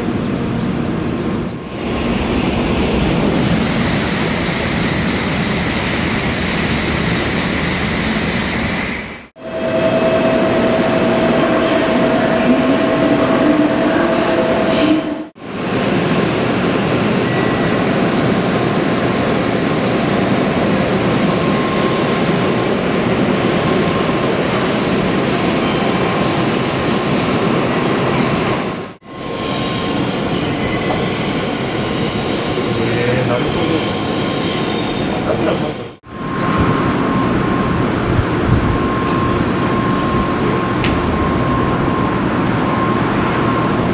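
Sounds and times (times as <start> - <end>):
train running noise: 0.0 - 43.9
high-pitched wheel squeal: 29.1 - 35.6.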